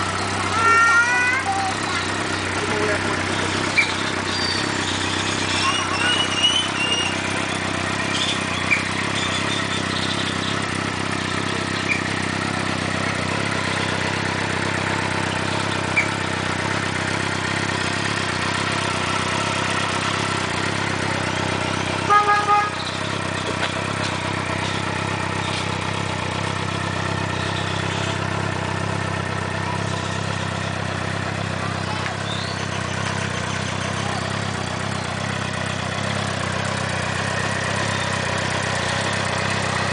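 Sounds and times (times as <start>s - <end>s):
motorcycle engine idling: 0.0s - 39.9s
short horn toot: 22.0s - 23.0s.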